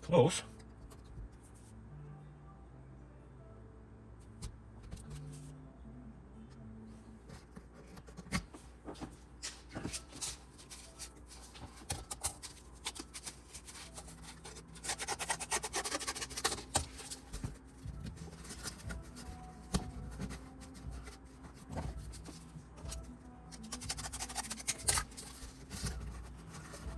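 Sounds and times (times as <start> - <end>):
cardboard being handled: 7.4 - 26.9
cardboard crinkling: 7.9 - 26.9
scratchy rubbing: 9.6 - 26.9.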